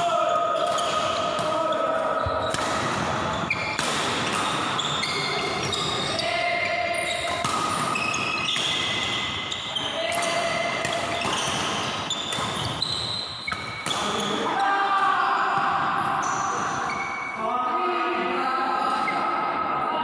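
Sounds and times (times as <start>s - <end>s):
shoes squeaking on court floor: 1.6s - 14.6s, 16.2s - 17.4s.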